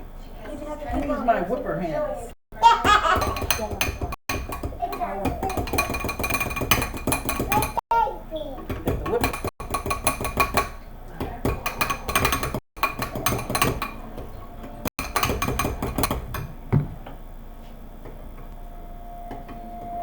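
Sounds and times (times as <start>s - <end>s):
utensil clinking against bowl: 2.9s - 7.8s, 8.6s - 16.6s.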